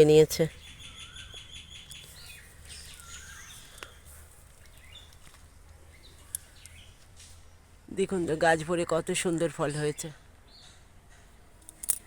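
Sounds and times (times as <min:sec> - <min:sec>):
faint bird chirps: 0:00.3 - 0:07.6.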